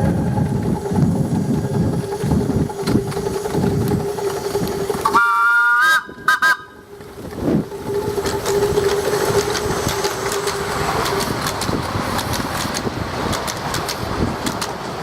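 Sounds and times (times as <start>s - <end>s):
train running with clicks: 0.0s - 15.0s
steam locomotive chime whistle: 3.2s - 7.1s.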